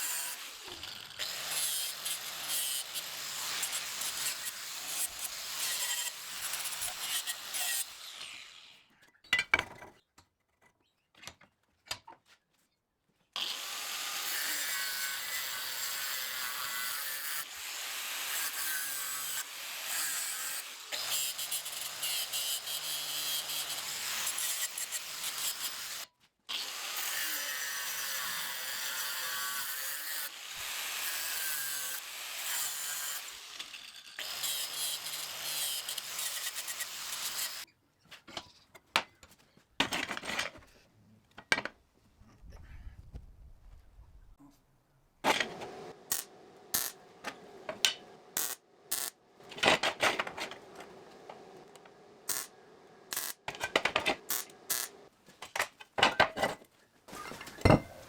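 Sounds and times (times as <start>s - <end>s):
welding torch buzzing: 45.8s - 47.1s, 48.3s - 49.2s, 51.6s - 55.0s.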